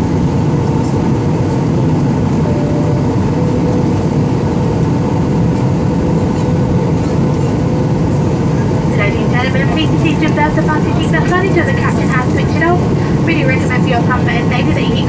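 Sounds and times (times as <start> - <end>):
jet engines roaring: 0.0 - 15.0
air rushing over fuselage: 8.7 - 14.2.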